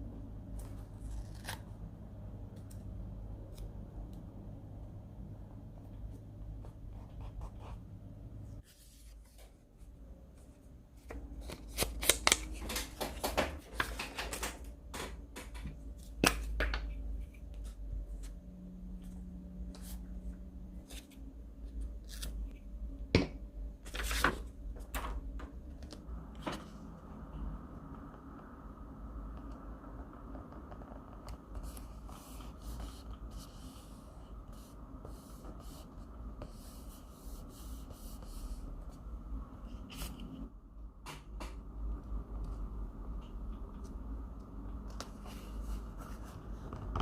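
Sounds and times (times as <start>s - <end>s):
paper rustling and crinkling: 23.8s - 25.2s.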